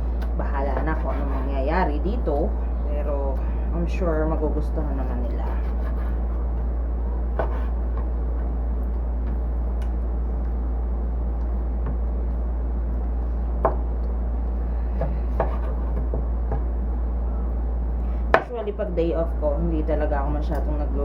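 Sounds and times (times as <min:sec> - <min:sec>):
steady low hum: 0:00.0 - 0:21.0
knife cutting on cutting board: 0:07.4 - 0:07.8.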